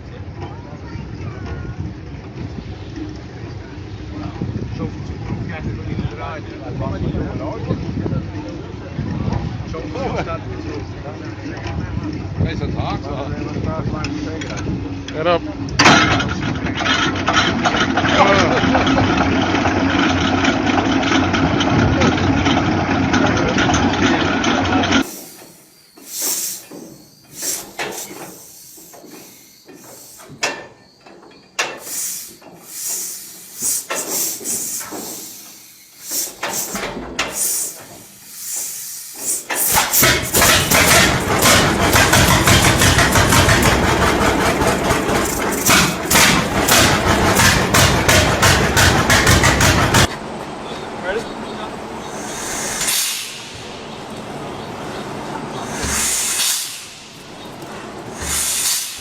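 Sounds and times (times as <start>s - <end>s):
old engine running: 1.0s - 30.4s, 36.0s - 59.0s
short hisses: 25.0s - 30.5s, 31.6s - 47.6s, 52.0s - 54.2s, 55.5s - 59.0s
engine firing rapidly: 36.1s - 50.4s, 51.0s - 59.0s
knocks: 39.9s - 50.2s.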